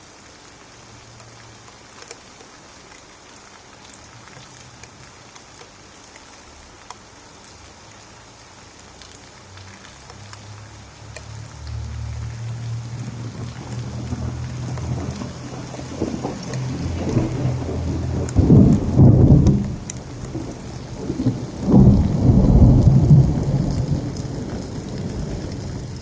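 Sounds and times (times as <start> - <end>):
steady rain falling: 0.0 - 26.0
low thunder rumble: 12.6 - 26.0.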